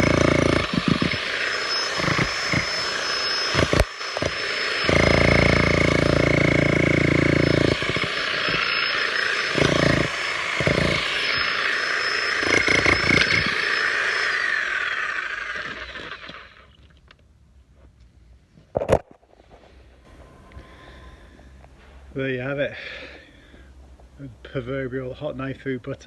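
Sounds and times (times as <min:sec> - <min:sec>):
demolition hammer chiselling concrete: 0:00.0 - 0:16.6
motor whine: 0:00.0 - 0:16.9.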